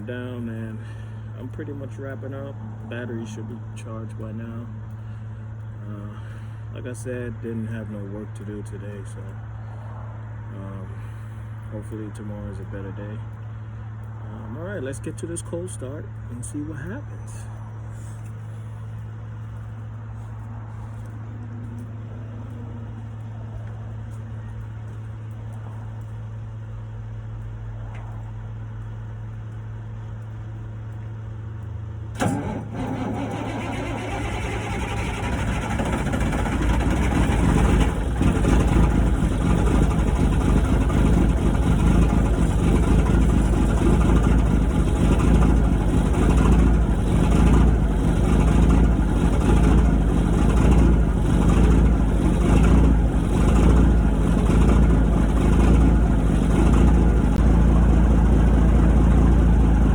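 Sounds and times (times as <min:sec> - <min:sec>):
diesel truck engine starting: 0:00.0 - 0:28.2, 0:28.8 - 0:59.9
low hum: 0:00.0 - 0:59.9.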